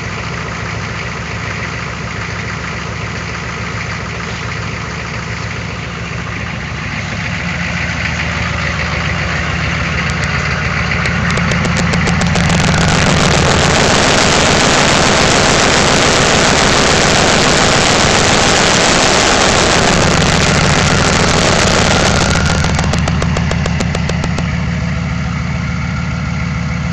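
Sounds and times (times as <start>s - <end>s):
diesel engine idling: 0.0s - 26.9s
loud rushing noise: 11.0s - 24.5s.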